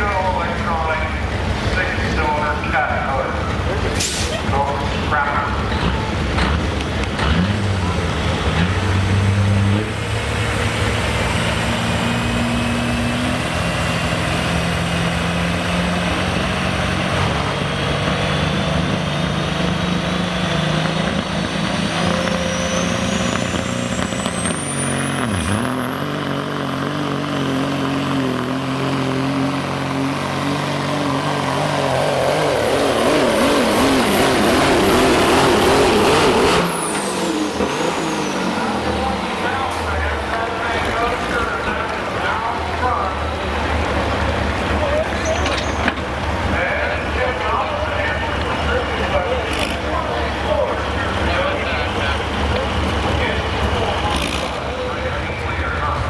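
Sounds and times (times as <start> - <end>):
diesel truck engine under load: 0.0 - 56.0
turbocharger whine: 5.1 - 46.0.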